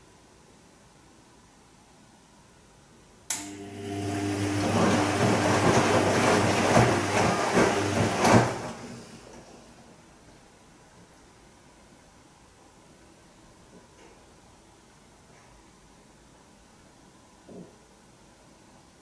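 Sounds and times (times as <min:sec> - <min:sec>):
washing machine motor hum: 0:03.3 - 0:09.9
water and laundry sloshing: 0:03.8 - 0:09.8.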